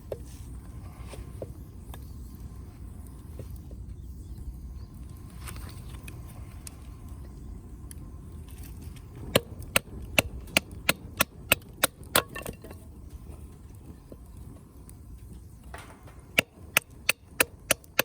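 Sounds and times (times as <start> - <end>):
firewood being struck: 9.3 - 12.9, 15.7 - 18.0.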